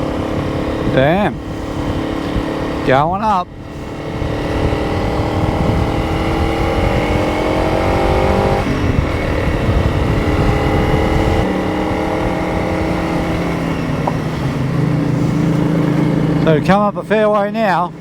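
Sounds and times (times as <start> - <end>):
motorcycle engine accelerating: 0.0 - 18.0
wind buffeting microphone: 0.0 - 18.0.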